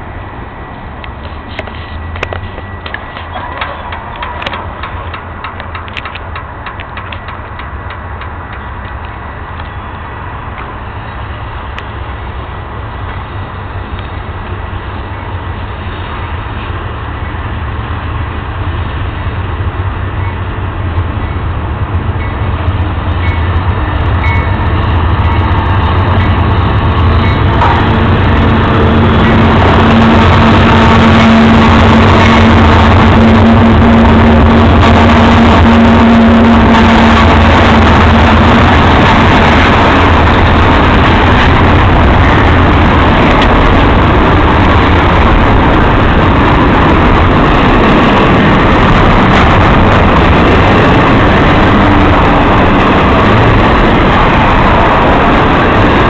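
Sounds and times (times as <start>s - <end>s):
diesel locomotive engine hum: 0.0s - 56.0s
train rolling on rails: 0.0s - 56.0s.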